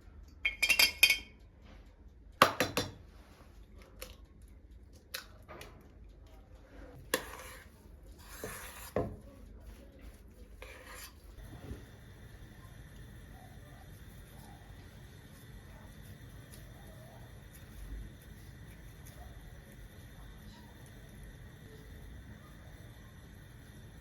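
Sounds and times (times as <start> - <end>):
dishes and cutlery clattering: 0.5 - 1.4
ringing clinks: 0.5 - 1.4.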